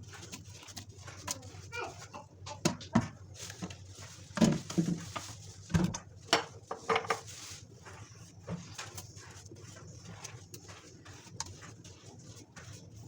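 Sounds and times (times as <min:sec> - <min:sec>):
kitchenware knocks and clinks: 0:06.3 - 0:07.2.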